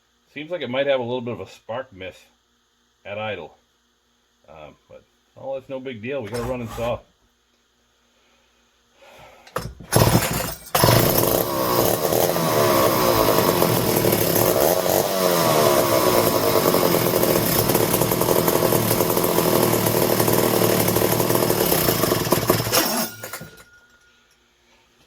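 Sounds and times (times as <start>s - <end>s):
chainsaw engine revving: 9.9s - 23.5s.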